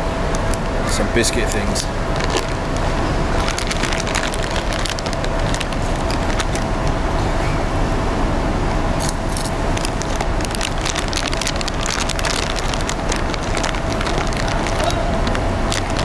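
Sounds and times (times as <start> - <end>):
engine and traffic hum: 0.0 - 16.0
sharp crackles and clicks: 1.5 - 7.0, 9.0 - 16.0.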